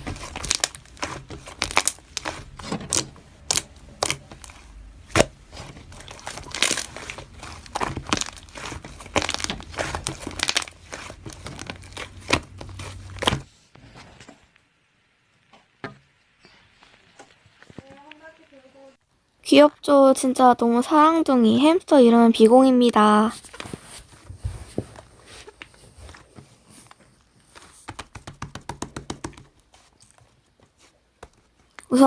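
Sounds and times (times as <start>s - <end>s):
hamster rustling in bedding: 23.3s - 27.9s.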